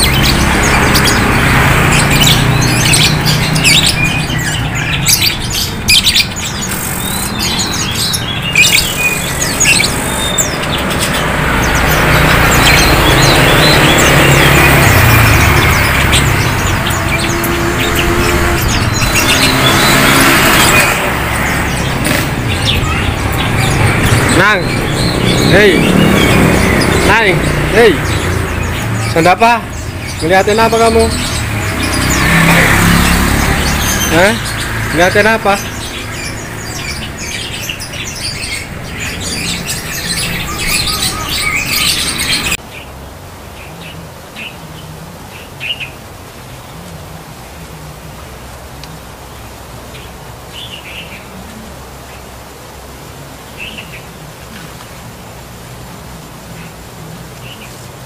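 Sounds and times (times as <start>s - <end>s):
vehicle engine hum: 0.0s - 43.1s
songbirds chirping: 0.0s - 58.0s.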